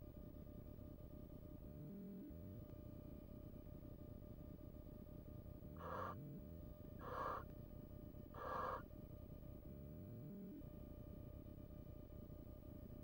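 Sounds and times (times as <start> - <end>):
barn owl rasping calls: 5.8 - 6.2, 7.0 - 7.5, 8.3 - 8.9.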